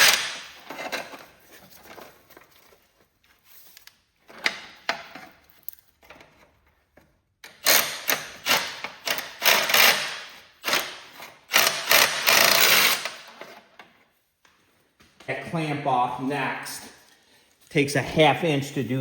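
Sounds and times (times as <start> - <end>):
sharp mechanical rattling bursts: 7.6 - 13.3.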